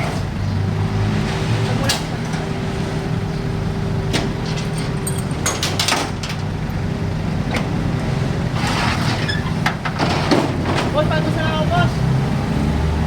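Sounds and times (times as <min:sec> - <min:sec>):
truck engine idling: 0:00.0 - 0:13.0
sharp knocks and clanks: 0:04.1 - 0:06.6, 0:09.5 - 0:11.6.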